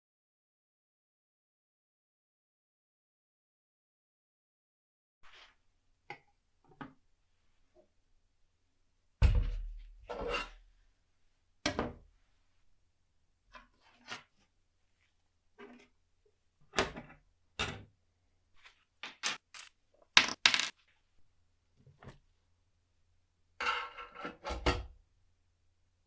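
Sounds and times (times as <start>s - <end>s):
small parts clinking on a work surface: 19.0s - 20.8s.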